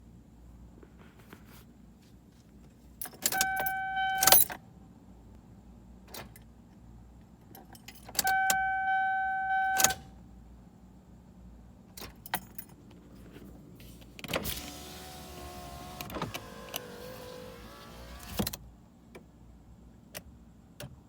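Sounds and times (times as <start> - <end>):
keys jangling and clicking: 3.0 - 4.6, 7.5 - 8.3, 12.0 - 12.9
starter motor whine: 14.4 - 18.5.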